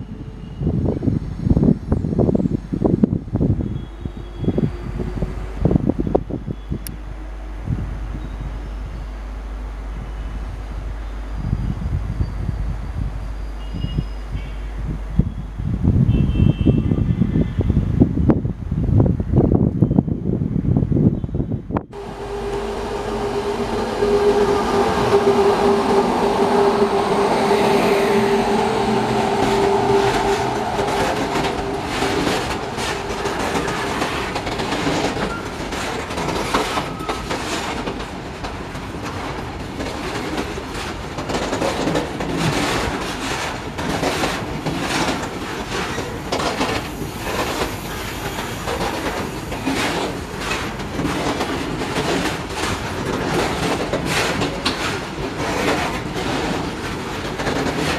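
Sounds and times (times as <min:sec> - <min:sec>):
steady tone: 0:21.9 - 0:35.4
freight train wheels clattering: 0:21.9 - 0:57.9.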